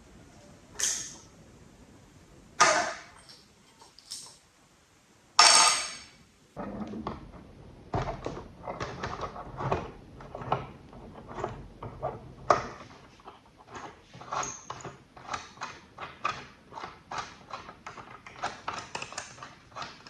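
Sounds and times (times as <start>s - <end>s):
knocks and scrapes: 6.6s - 20.0s.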